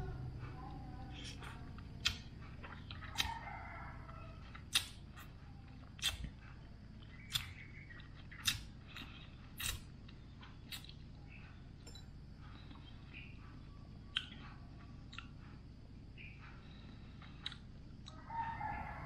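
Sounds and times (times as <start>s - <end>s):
person chewing with mouth open: 1.2s - 11.2s, 12.5s - 15.6s, 16.8s - 18.3s.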